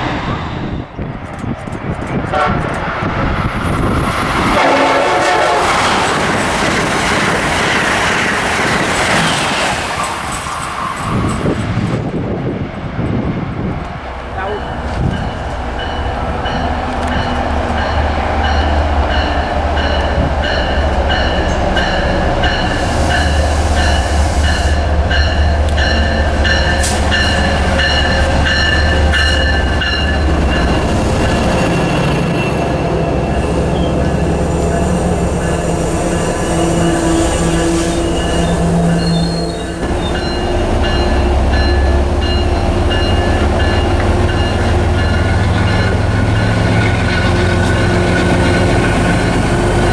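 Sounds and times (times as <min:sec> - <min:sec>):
train rumbling on rails: 0:00.0 - 0:49.9
wheel squeal: 0:36.2 - 0:40.5.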